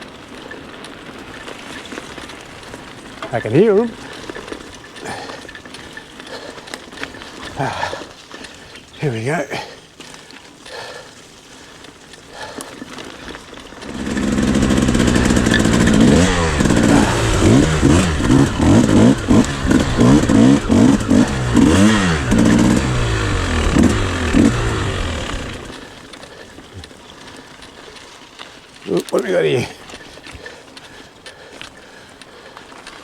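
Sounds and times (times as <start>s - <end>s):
motorcycle engines revving: 13.8s - 26.0s.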